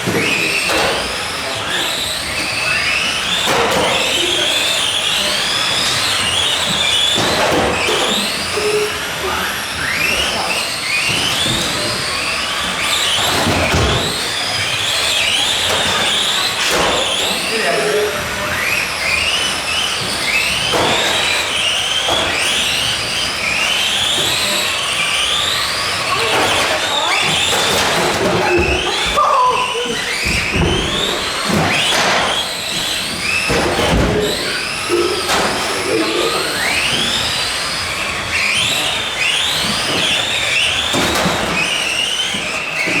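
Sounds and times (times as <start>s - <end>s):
toy truck electric motors whining: 0.0s - 43.0s.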